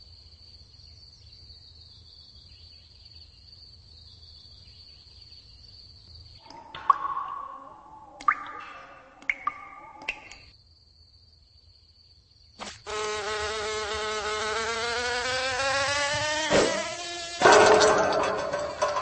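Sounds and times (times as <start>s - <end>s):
insect wings buzzing: 12.6s - 18.9s
thud: 16.2s - 19.0s.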